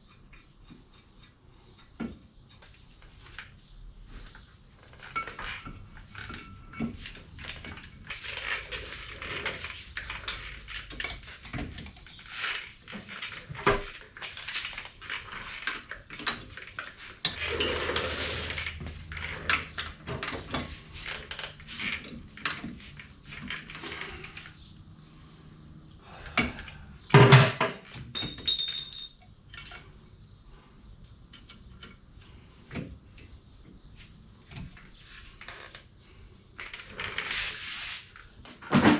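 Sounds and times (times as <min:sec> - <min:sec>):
metal tools clinking and clanking: 0:04.8 - 0:24.6, 0:26.2 - 0:29.9.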